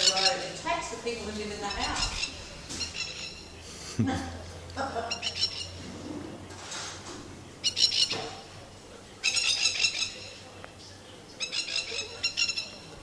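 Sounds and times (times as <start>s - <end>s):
plovers harsh alarm calls: 0.0s - 0.8s, 1.4s - 3.7s, 5.0s - 6.0s, 7.5s - 8.5s, 9.2s - 10.5s, 11.4s - 13.0s.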